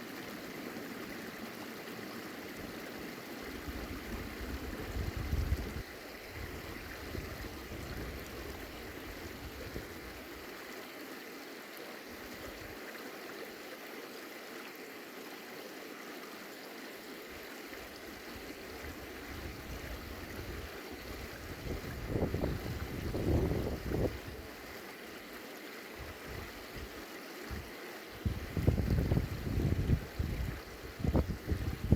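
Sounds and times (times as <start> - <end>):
running water rushing: 0.0 - 31.9
wind buffeting microphone: 4.0 - 5.8, 21.3 - 24.3, 28.2 - 31.9.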